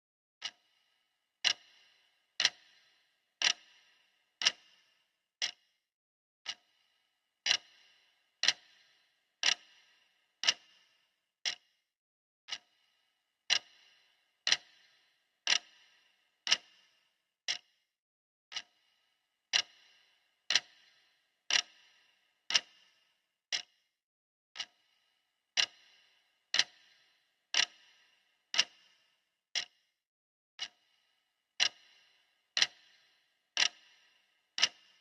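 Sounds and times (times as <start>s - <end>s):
clock ticking: 0.4s - 0.8s, 1.4s - 5.7s, 6.4s - 6.8s, 7.4s - 11.7s, 12.5s - 12.8s, 13.5s - 17.6s, 18.5s - 18.9s, 19.5s - 22.9s, 23.5s - 23.7s, 24.6s - 25.0s, 25.6s - 29.0s, 29.6s - 29.8s, 30.6s - 31.0s, 31.6s - 35.0s.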